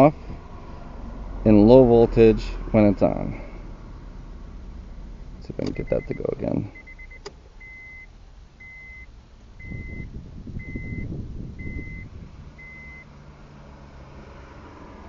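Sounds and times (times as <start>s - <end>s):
car engine cranking and idling: 0.0s - 15.0s
beeps: 5.7s - 13.0s.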